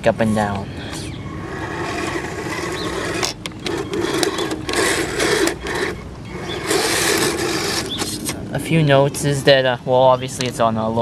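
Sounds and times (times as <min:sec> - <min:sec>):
electric motors whirring: 0:00.8 - 0:09.4.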